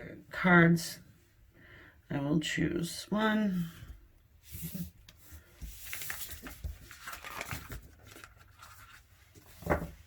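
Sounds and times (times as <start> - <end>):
cards shuffling: 4.6 - 10.0.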